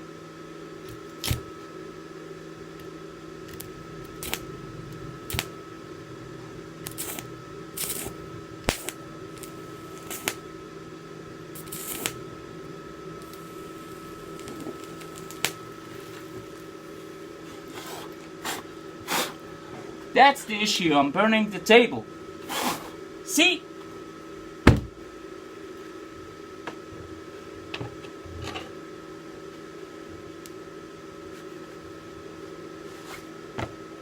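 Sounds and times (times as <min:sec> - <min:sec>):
welding machine hum: 0:00.6 - 0:19.7
welding arc crackling: 0:00.9 - 0:01.6, 0:02.7 - 0:06.0, 0:06.6 - 0:18.2
welding arc hissing: 0:02.8 - 0:05.8, 0:06.6 - 0:19.4, 0:22.4 - 0:23.0.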